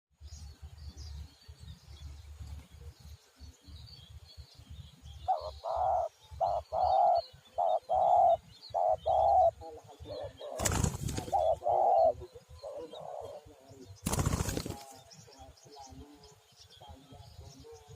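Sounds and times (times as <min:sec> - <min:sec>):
small birds chirping: 0:00.2 - 0:17.9
dove cooing: 0:05.3 - 0:14.8.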